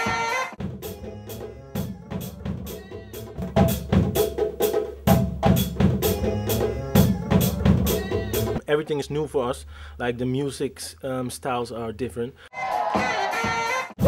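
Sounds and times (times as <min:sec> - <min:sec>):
music with drum beat and bass: 0:00.0 - 0:08.6, 0:12.6 - 0:14.0.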